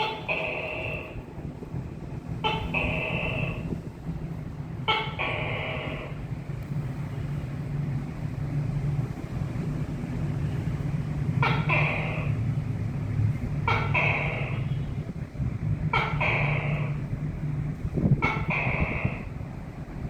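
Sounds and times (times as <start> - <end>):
gecko calling: 0.0 - 6.4, 11.4 - 12.5, 13.6 - 15.1, 15.8 - 19.5
steady low hum: 0.0 - 20.0.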